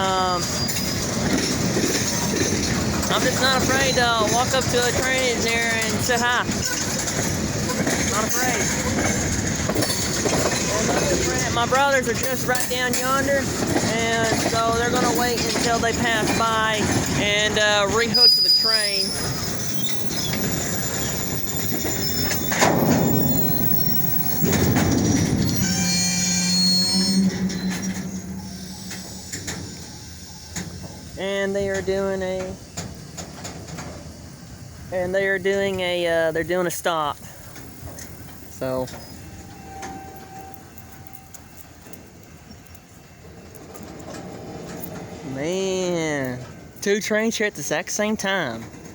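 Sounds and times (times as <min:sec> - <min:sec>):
high wheel squeal: 0:00.0 - 0:36.6, 0:37.3 - 0:47.1
train wheels rumbling over rails: 0:00.0 - 0:48.9.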